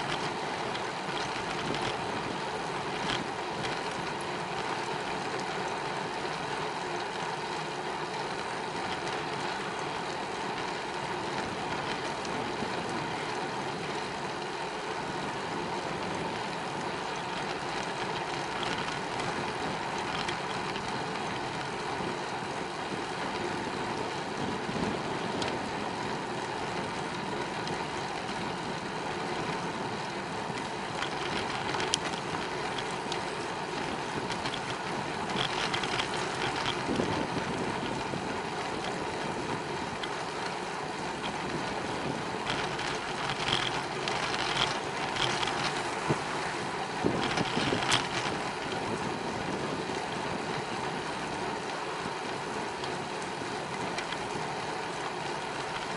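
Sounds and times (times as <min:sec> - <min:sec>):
bicycle tyre noise: 0:00.0 - 0:55.9
wind on microphone: 0:34.0 - 0:40.0.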